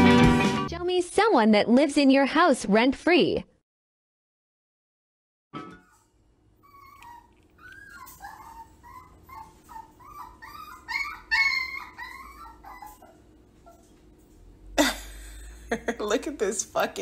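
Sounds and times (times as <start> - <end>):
dog whining and whimpering: 6.6 - 14.0.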